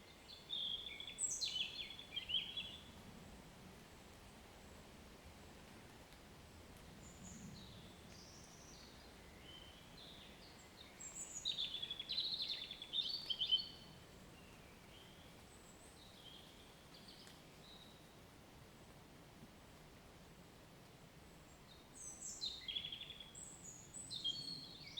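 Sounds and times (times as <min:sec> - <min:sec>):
songbirds singing and calling: 0:00.0 - 0:02.9, 0:07.0 - 0:18.0, 0:21.5 - 0:24.9
faint steady background hiss: 0:00.0 - 0:24.9.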